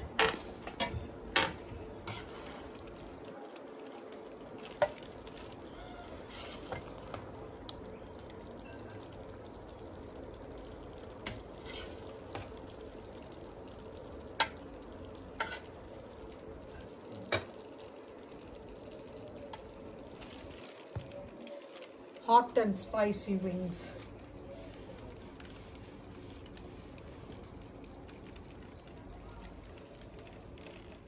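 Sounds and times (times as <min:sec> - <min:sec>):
chicken wings sizzling in wok: 0:00.0 - 0:03.2, 0:04.5 - 0:07.9, 0:09.4 - 0:18.6.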